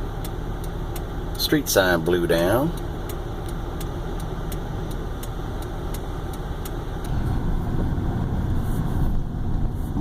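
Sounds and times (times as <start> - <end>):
light regular ticking: 0.0 - 7.2
car engine rumbling: 0.0 - 10.0.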